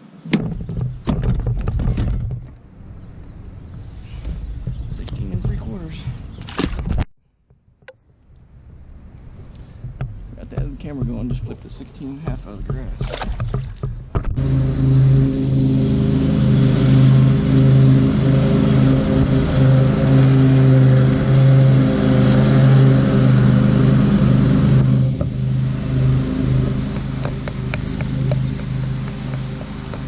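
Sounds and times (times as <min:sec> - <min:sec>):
engine running steadily: 0:09.4 - 0:30.0.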